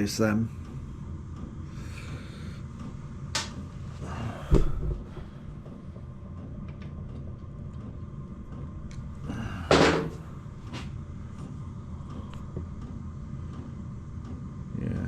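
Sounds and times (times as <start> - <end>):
metal part clunking down: 9.7 - 10.3.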